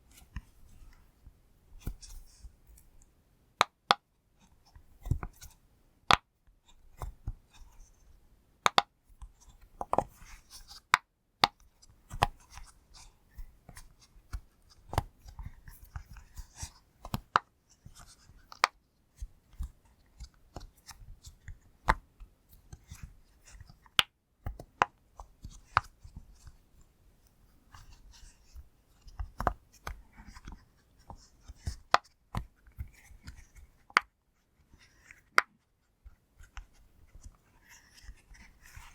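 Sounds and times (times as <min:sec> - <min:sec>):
soft handling noise: 0:00.0 - 0:03.2, 0:11.6 - 0:38.9.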